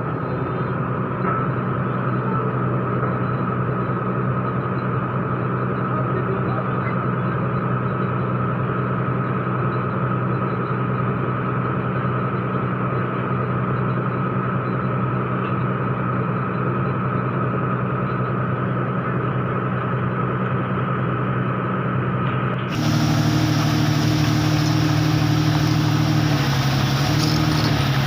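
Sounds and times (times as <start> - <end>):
excavator diesel engine: 0.0 - 28.0
high whine: 9.2 - 28.0.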